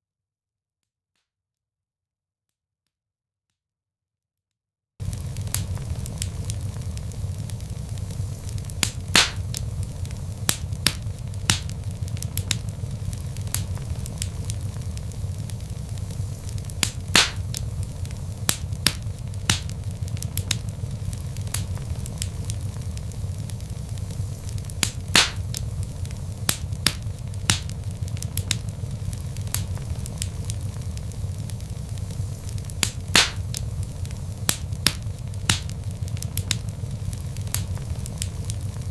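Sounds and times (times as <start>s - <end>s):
wood fire crackling and popping: 5.0s - 38.9s.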